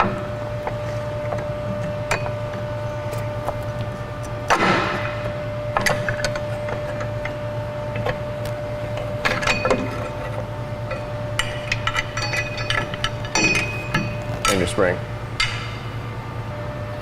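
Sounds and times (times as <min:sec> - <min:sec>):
metal clanks of brake parts: 0:09.0 - 0:14.8
metallic clicks and rings: 0:10.9 - 0:14.6.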